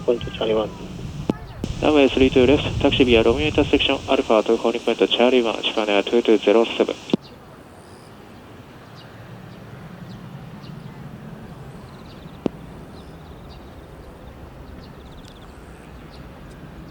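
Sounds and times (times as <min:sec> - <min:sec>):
steady low rumble: 0:00.0 - 0:07.2.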